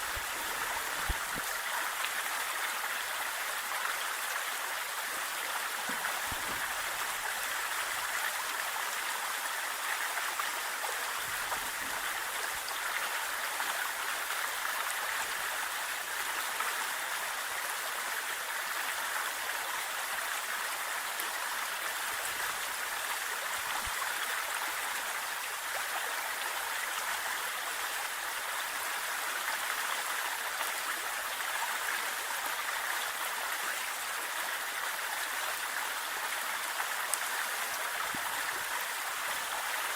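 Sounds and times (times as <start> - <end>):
waterfall rushing and splashing: 0.0 - 3.6, 4.3 - 13.5.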